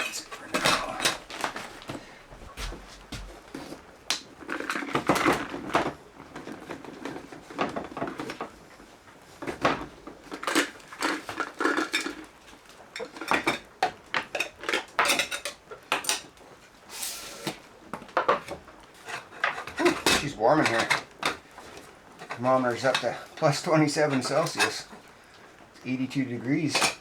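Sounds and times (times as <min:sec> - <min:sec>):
cookware clattering and clinking: 0:00.0 - 0:01.7, 0:09.5 - 0:12.3, 0:12.9 - 0:16.3, 0:18.2 - 0:25.1, 0:26.7 - 0:27.0.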